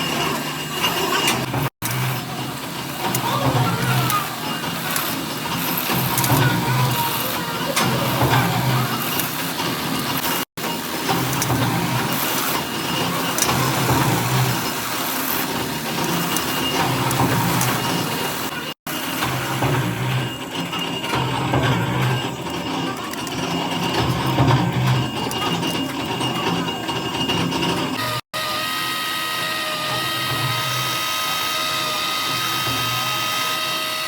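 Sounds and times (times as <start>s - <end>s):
machinery clattering: 0.0s - 34.0s.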